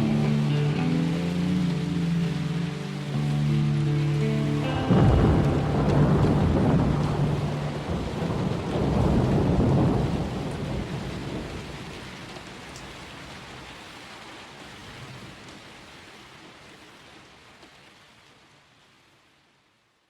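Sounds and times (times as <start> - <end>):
thunder rumbling: 0.0 - 12.3
steady rain: 0.0 - 20.0.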